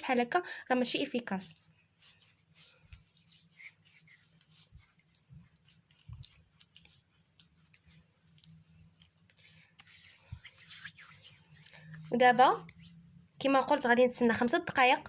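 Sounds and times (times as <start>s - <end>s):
hands squishing wet paste: 0.9s - 13.1s
small irregular crackles: 2.2s - 12.0s.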